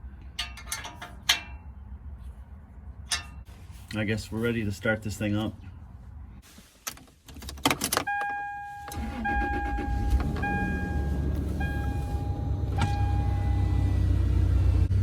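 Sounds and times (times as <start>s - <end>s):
dashboard warning chime beeping: 8.0s - 14.1s
truck engine starting and idling: 8.1s - 15.0s.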